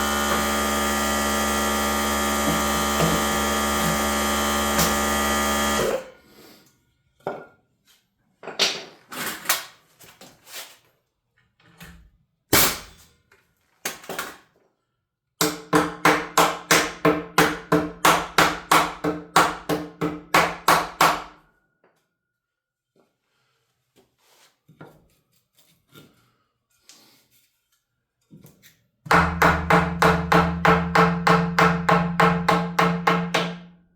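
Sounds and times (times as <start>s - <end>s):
hammer striking wood: 0.1s - 5.9s, 15.4s - 21.4s, 29.1s - 33.8s.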